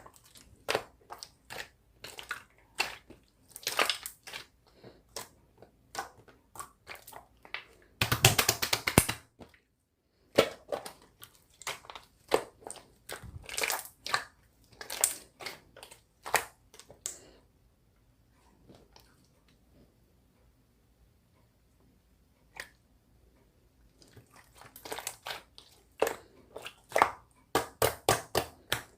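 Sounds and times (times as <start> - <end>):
slime crackling and popping: 0.5 - 4.5, 5.9 - 9.3.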